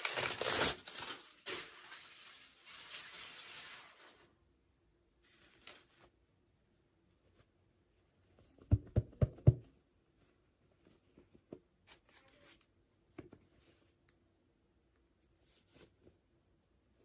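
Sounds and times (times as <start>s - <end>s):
plastic crinkling: 0.0s - 4.3s.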